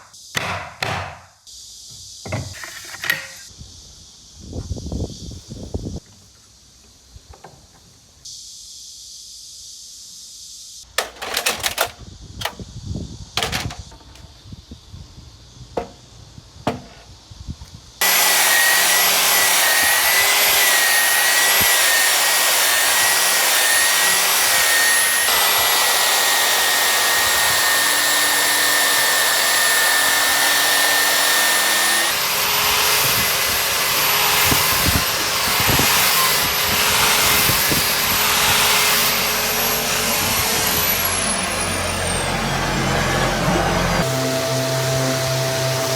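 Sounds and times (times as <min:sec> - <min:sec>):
wood and tools knocking: 0:00.4 - 0:01.3, 0:02.2 - 0:03.4, 0:15.7 - 0:16.0, 0:16.6 - 0:17.1
power tool whining: 0:18.0 - 0:45.9.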